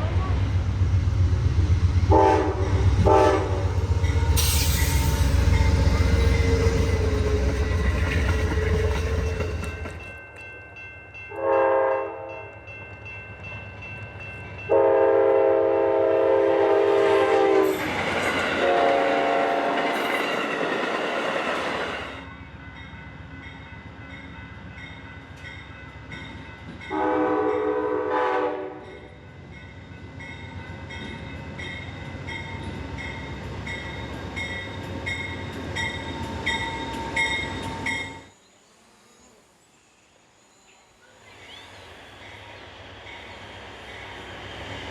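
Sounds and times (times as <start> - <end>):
train passing rumble: 0.0 - 44.9
locomotive horn blasts: 2.1 - 6.8, 11.3 - 12.3, 14.7 - 17.7, 18.6 - 20.0, 26.9 - 29.0.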